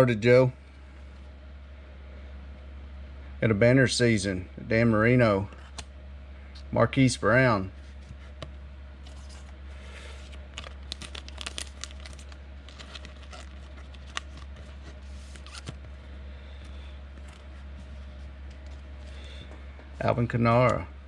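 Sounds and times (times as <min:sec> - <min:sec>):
low steady hum: 0:00.0 - 0:21.0
card wrappers rustling and tearing: 0:09.0 - 0:19.2.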